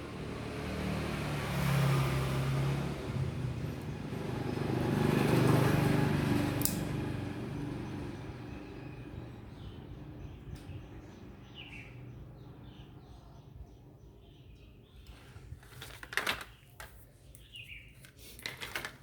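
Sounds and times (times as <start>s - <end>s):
motor vehicle passing by: 0.0s - 13.0s
birds chirping: 7.6s - 15.9s, 16.5s - 18.3s.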